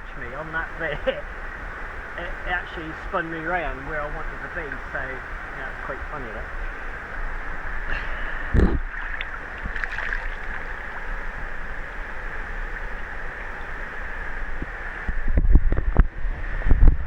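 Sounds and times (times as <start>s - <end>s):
river water flowing: 0.0s - 15.2s
splashes: 7.9s - 13.0s.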